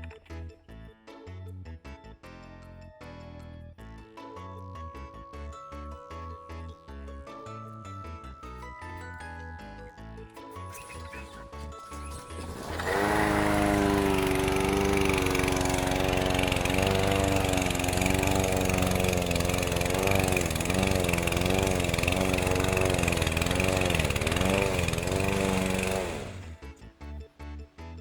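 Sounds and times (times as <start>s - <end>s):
lawn mower engine running: 12.0s - 26.8s.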